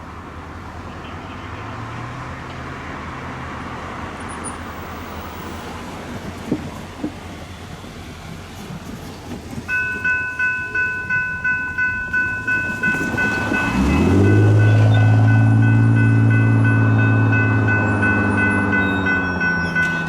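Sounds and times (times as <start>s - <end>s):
train deep drone: 9.6s - 20.0s
railroad crossing bell ringing: 9.7s - 20.0s.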